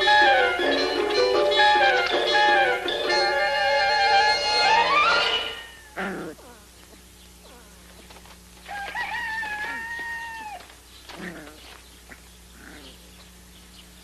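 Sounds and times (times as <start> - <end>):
rooster crowing: 8.6 - 10.8.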